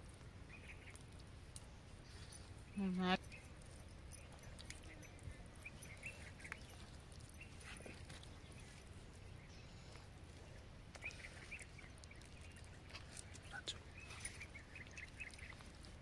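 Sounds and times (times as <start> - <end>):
distant bird calls: 0.4 - 16.0.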